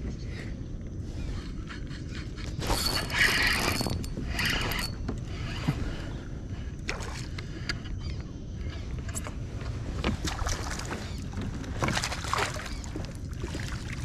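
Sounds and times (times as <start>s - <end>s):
wind rumble on microphone: 0.0s - 14.0s
fishing reel and line running: 2.6s - 6.0s.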